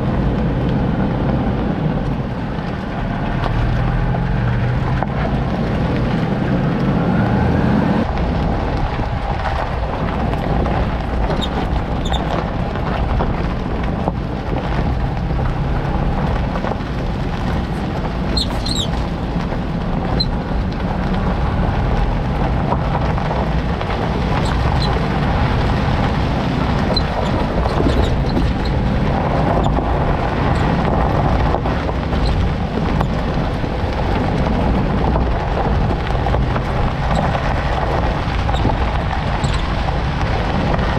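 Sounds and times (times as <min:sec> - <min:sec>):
car engine and road noise: 0:00.0 - 0:40.9
suspension squeaks: 0:11.3 - 0:12.5, 0:18.2 - 0:19.1, 0:24.2 - 0:25.4, 0:26.1 - 0:33.4, 0:36.9 - 0:37.7, 0:38.4 - 0:39.8.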